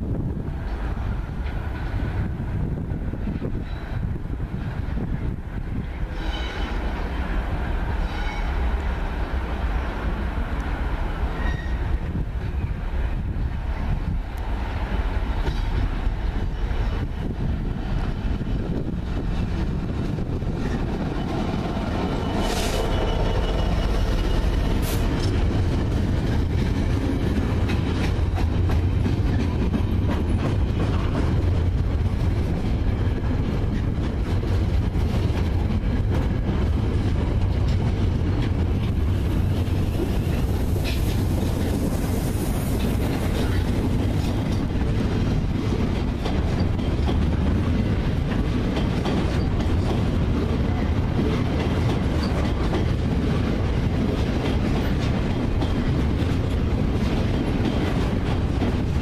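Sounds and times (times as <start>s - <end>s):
diesel locomotive engine running: 12.9s - 53.5s.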